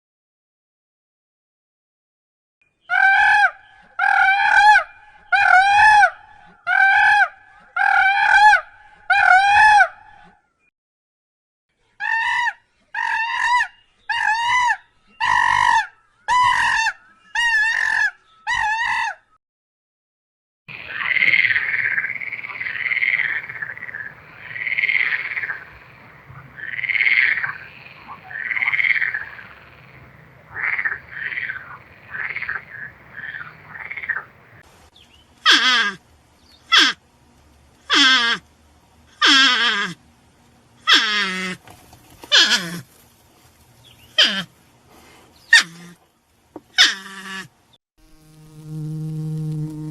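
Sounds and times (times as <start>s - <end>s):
rough animal call: 2.9s - 10.4s, 12.0s - 19.3s, 20.7s - 34.4s, 35.4s - 36.0s, 36.6s - 37.0s, 37.9s - 38.4s, 39.2s - 40.0s, 40.8s - 41.6s, 42.2s - 43.0s, 44.0s - 46.0s, 46.7s - 47.6s
short pitched animal calls: 35.4s - 36.0s, 36.7s - 37.0s, 37.9s - 38.4s, 39.2s - 40.0s, 42.3s - 42.8s, 44.2s - 44.5s.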